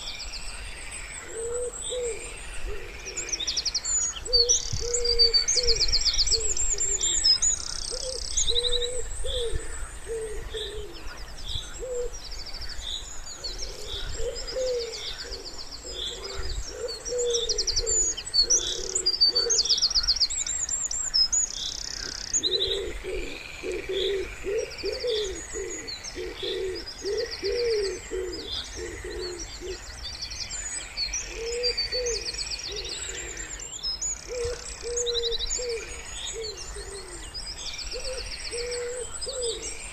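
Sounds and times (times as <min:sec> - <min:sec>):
songbirds chirping: 0:00.0 - 0:39.9
wood pigeon cooing: 0:01.3 - 0:03.4, 0:04.2 - 0:07.2, 0:07.9 - 0:11.0, 0:11.8 - 0:12.2, 0:13.6 - 0:19.7, 0:22.0 - 0:29.8, 0:31.3 - 0:33.6, 0:34.3 - 0:37.3, 0:37.9 - 0:39.8.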